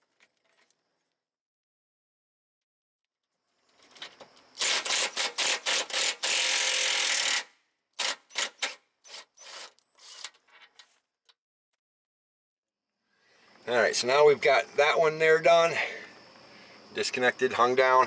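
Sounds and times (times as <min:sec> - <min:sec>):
ratchet wrench ratcheting: 0:04.6 - 0:10.4.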